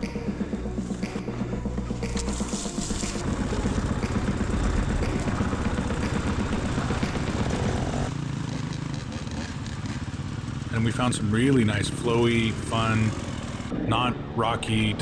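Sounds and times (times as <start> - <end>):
dirt bike engine under throttle: 2.3 - 13.7.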